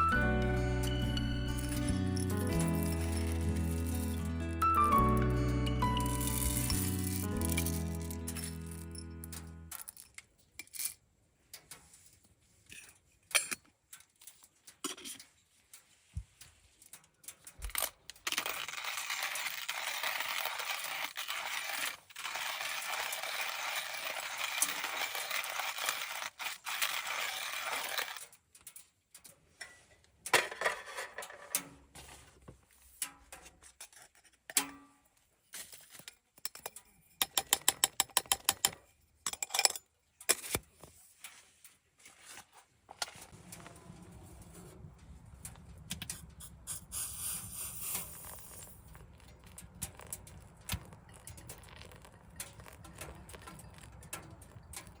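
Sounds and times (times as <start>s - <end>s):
metal gear clinking: 0.9s - 11.0s, 16.9s - 28.3s, 45.0s - 55.0s
steady rushing hiss: 46.4s - 48.5s.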